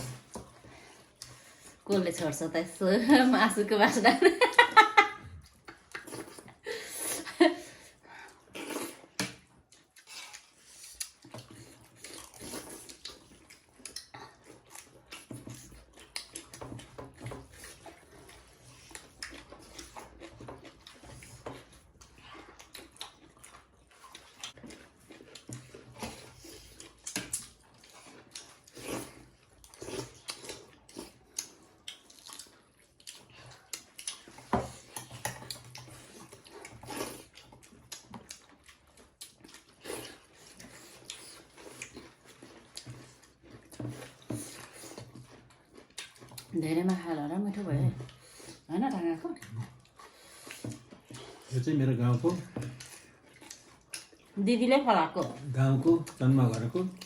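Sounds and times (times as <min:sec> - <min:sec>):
chewing: 0:00.0 - 0:02.3, 0:04.5 - 0:57.0
wet squelches of food: 0:04.2 - 0:57.0.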